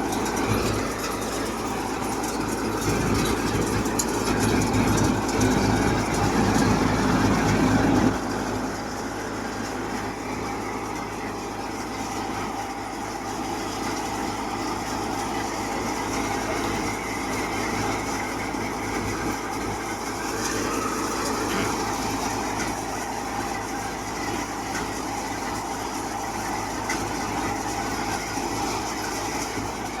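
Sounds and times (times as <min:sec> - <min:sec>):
thresher mechanical drone: 0:00.0 - 0:13.8, 0:14.5 - 0:24.3
tractor engine hum: 0:00.0 - 0:30.0.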